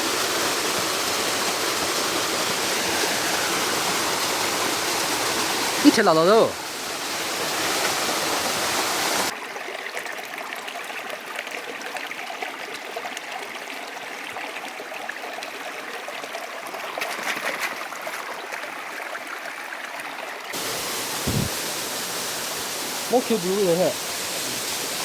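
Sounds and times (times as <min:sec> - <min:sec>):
stream water rushing: 0:00.0 - 0:13.8, 0:14.6 - 0:25.0
low thump: 0:21.2 - 0:21.6.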